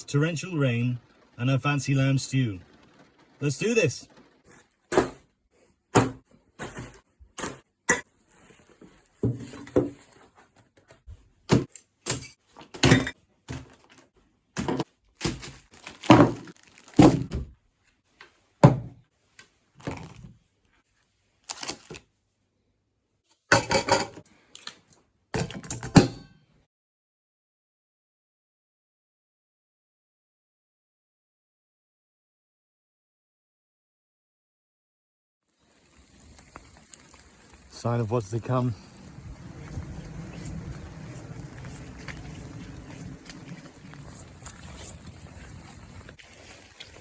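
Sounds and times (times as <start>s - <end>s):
thuds and knocks: 6.0s - 7.6s.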